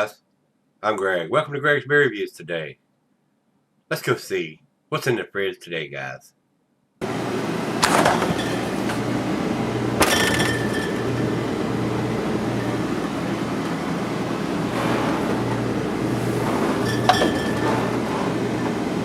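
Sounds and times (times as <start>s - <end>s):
refrigerator hum: 7.0s - 19.0s
beer bottles clinking: 7.8s - 9.0s, 10.0s - 11.7s, 15.2s - 18.9s.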